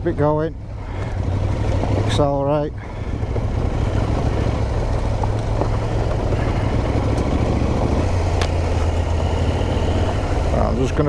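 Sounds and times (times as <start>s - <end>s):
motorcycle engine droning: 0.0s - 11.0s.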